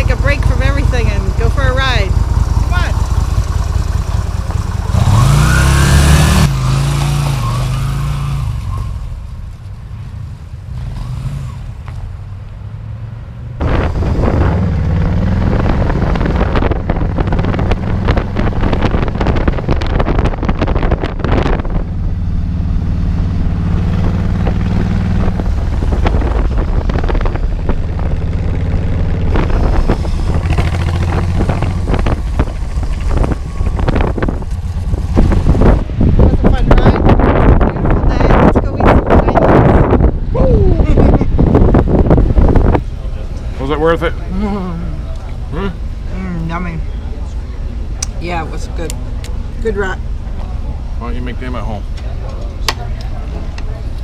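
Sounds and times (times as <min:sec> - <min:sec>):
motorcycle engines revving: 0:00.0 - 0:54.0
wind rushing on microphone: 0:13.6 - 0:43.1.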